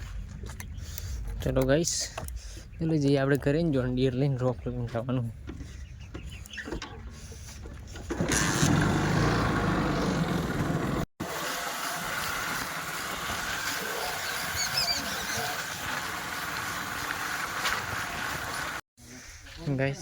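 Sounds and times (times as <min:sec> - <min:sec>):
tractor engine running: 0:08.0 - 0:11.1.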